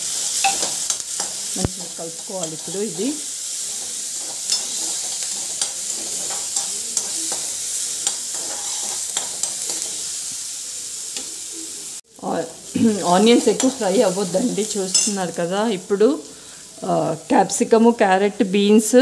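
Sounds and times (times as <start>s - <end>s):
onions sizzling in hot oil: 0.0s - 19.0s
spoon scraping and tapping pan: 0.4s - 3.2s, 3.8s - 10.0s, 14.9s - 15.2s.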